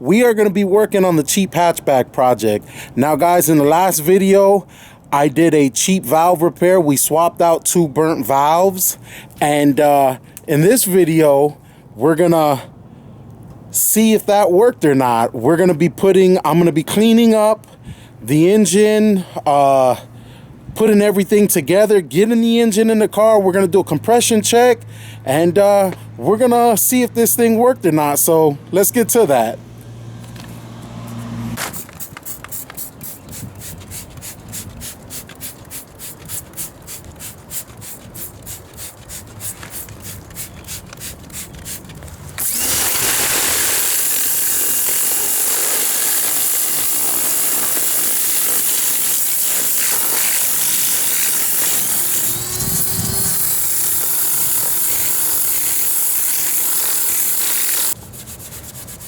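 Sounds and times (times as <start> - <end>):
hand scrubbing strokes: 32.0 - 59.0
power tool running: 42.4 - 58.0.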